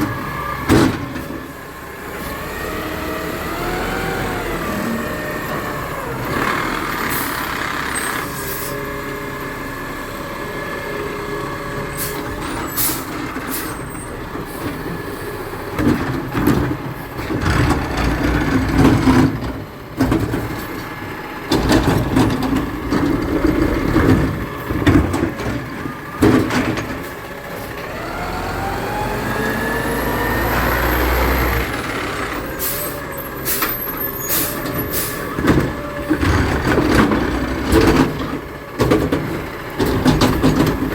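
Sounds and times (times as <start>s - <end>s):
garbage truck engine running: 0.0s - 40.9s
engine revving up: 2.2s - 8.2s, 27.8s - 32.7s
knocks and clatter: 15.8s - 20.9s, 21.5s - 27.2s, 34.7s - 40.9s.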